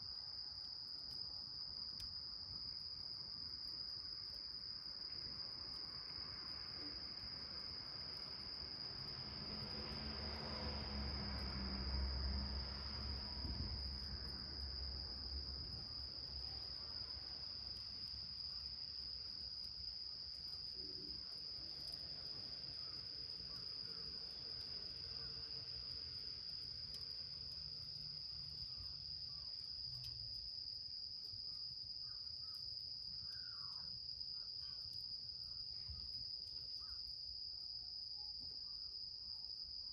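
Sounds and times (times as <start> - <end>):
faint ticks: 0.9 - 2.9, 17.7 - 18.2, 19.4 - 22.3, 26.8 - 33.9
insects trilling: 15.9 - 37.3.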